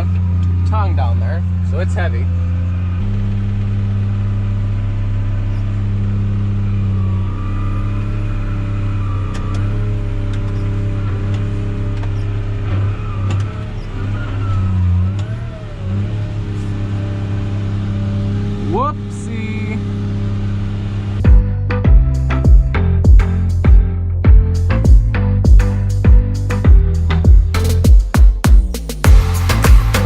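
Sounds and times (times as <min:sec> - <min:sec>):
tractor engine under load: 0:00.0 - 0:21.2.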